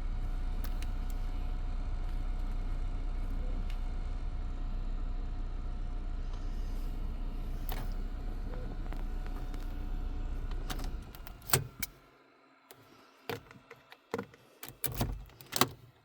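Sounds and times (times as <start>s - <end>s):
car engine running: 0.0s - 11.9s
clicks and knocks in car cabin: 10.4s - 11.9s, 13.3s - 16.0s.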